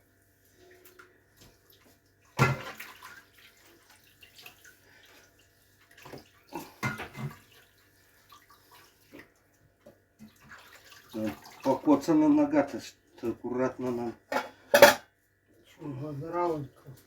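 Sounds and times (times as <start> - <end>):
water splashing: 1.6 - 5.2.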